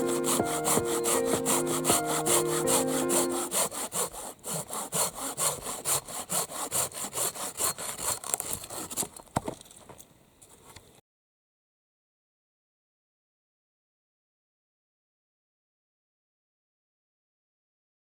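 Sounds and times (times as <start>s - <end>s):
background music: 0.0s - 3.6s
hand saw cutting wood: 0.0s - 9.4s
knock: 0.6s - 2.1s.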